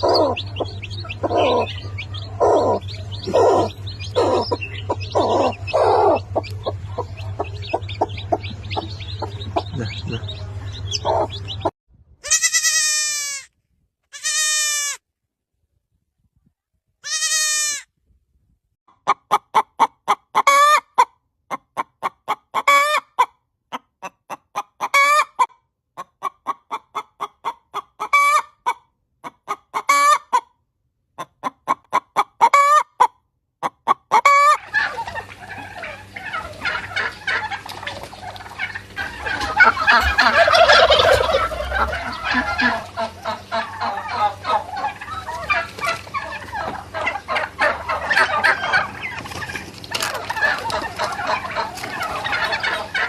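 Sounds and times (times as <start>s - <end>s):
overlapping fowl calls: 0.0s - 11.7s, 34.1s - 53.0s
turkeys calling: 0.0s - 11.7s, 24.8s - 25.3s, 28.0s - 28.5s, 33.8s - 53.0s
low hum: 0.0s - 12.2s, 34.7s - 53.0s.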